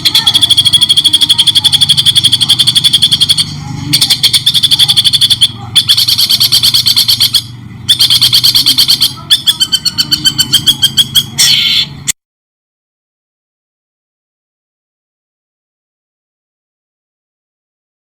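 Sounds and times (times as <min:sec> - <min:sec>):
songbird repeating sharp notes: 0:00.0 - 0:12.1.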